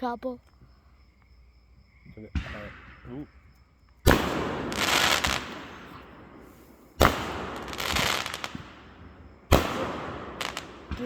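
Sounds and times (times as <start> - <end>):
fireworks bang: 2.2 - 11.0
crackling pops: 3.9 - 6.1, 7.0 - 8.8, 9.5 - 11.0.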